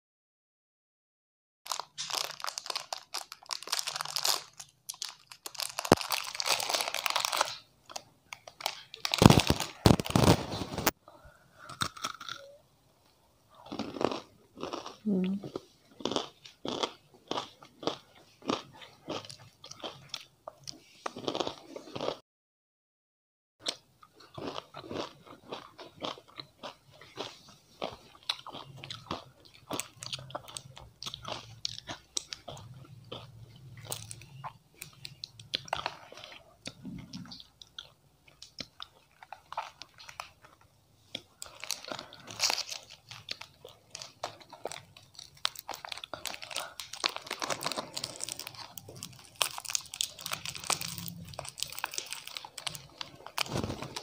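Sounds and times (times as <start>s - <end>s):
plastic wrapper crinkling: 1.7s - 11.0s, 41.4s - 54.0s
crunching and chewing snacks: 1.7s - 12.6s, 13.5s - 22.2s, 23.6s - 54.0s.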